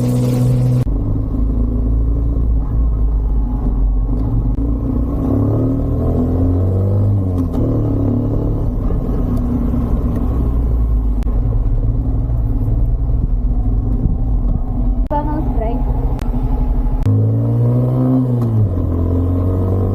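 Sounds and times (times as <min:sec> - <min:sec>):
wind rumble: 0:07.2 - 0:17.2.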